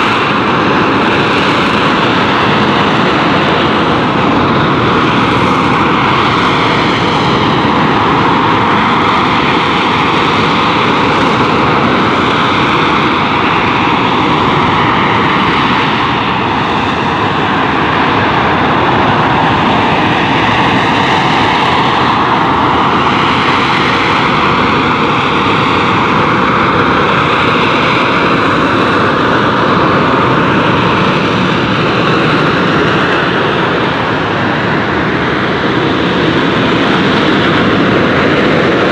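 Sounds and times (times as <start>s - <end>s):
jet engine running: 0.0s - 38.9s.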